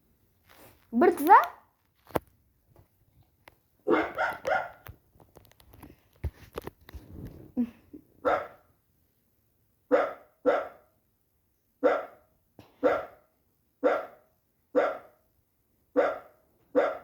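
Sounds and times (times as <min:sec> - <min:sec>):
dog barking: 0:03.8 - 0:04.9, 0:08.2 - 0:08.7, 0:09.9 - 0:10.9, 0:11.8 - 0:15.2, 0:15.9 - 0:17.0.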